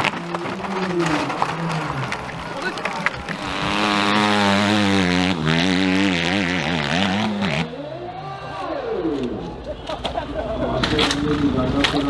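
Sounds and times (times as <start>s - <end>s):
dirt bike engine revving: 1.5s - 7.8s.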